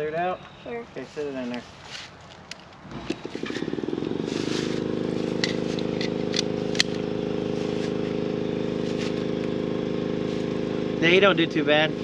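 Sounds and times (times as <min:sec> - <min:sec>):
engine idling: 0:02.8 - 0:12.0.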